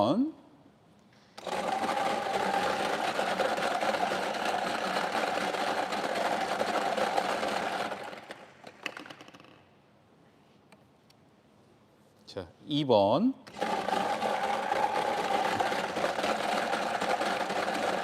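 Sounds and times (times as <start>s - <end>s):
lottery machine mixing balls: 1.4s - 9.3s, 13.5s - 18.0s.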